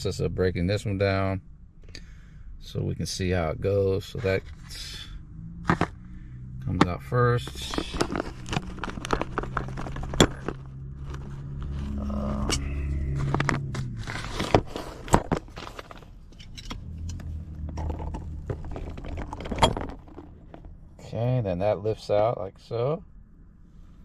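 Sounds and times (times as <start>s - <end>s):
low steady hum: 0.0s - 24.0s
metal parts clicking and scraping: 7.4s - 20.7s.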